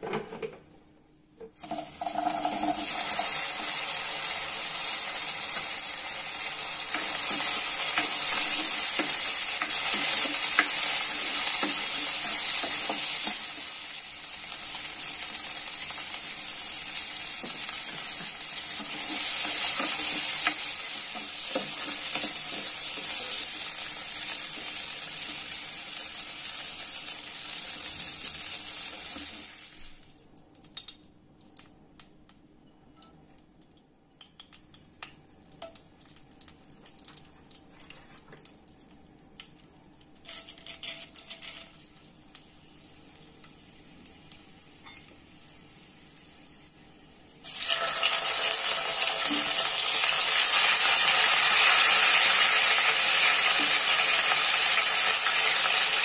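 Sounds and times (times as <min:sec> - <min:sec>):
loud sizzle of paste in oil: 0:01.6 - 0:30.1, 0:40.2 - 0:56.0
vegetables sizzling in oil: 0:01.6 - 0:30.1, 0:40.2 - 0:56.0
hot oil crackling and popping: 0:01.6 - 0:32.1, 0:33.6 - 0:46.6, 0:47.4 - 0:56.0.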